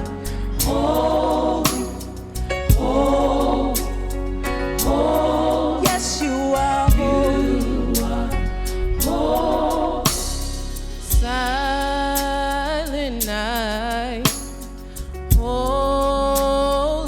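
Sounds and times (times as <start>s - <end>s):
worship band music: 0.0s - 17.0s
drum hits: 1.7s - 4.0s, 6.9s - 7.3s.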